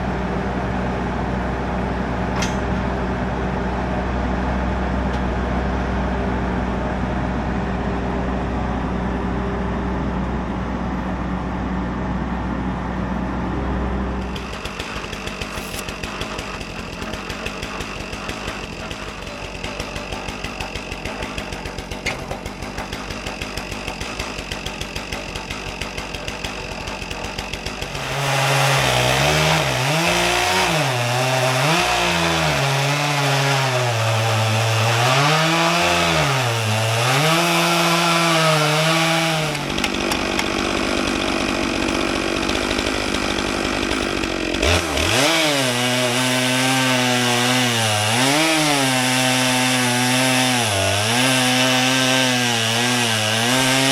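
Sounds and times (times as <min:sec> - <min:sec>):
chainsaw cutting log: 0:02.4 - 0:02.8, 0:14.2 - 0:53.9.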